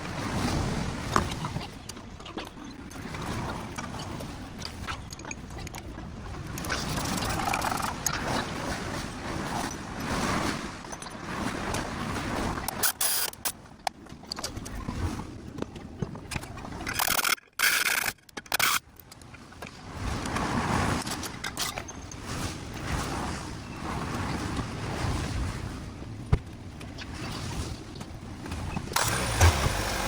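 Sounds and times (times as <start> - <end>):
tool clicking: 17.0 - 18.8, 29.0 - 30.0.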